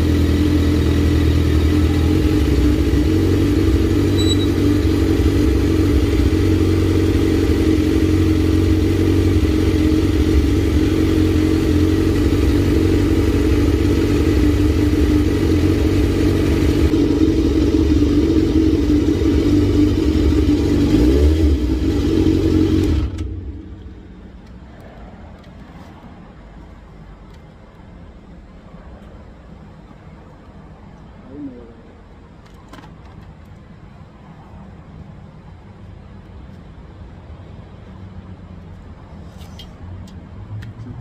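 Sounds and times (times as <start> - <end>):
motorcycle engine idling: 0.0 - 20.9.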